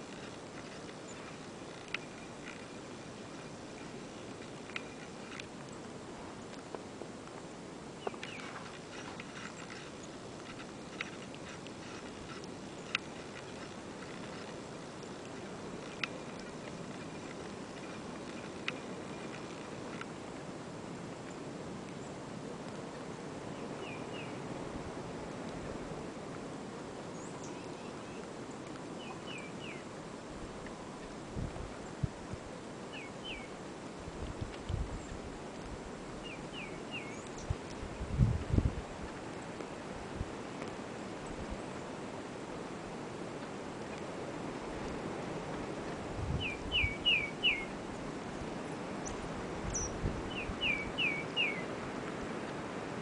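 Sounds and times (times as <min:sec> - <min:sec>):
small birds chirping: 0:00.0 - 0:06.6, 0:08.0 - 0:19.6, 0:23.5 - 0:24.4, 0:27.1 - 0:29.9, 0:32.9 - 0:33.6, 0:36.2 - 0:38.2, 0:46.3 - 0:51.7
background hiss: 0:00.0 - 0:53.0
songbird whistling: 0:36.2 - 0:37.4, 0:46.4 - 0:47.7, 0:49.7 - 0:51.7.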